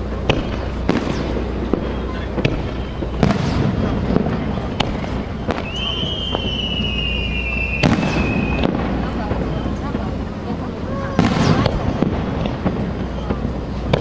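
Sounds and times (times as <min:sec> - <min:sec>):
fireworks bangs: 0:00.0 - 0:14.0
firework whistle falling in pitch: 0:05.0 - 0:09.7, 0:10.8 - 0:12.1.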